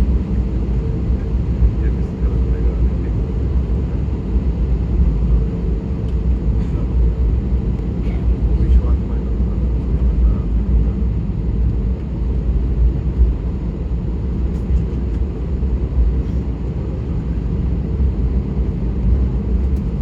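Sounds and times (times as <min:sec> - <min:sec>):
airliner engines and airflow rumble: 0:00.0 - 0:20.0.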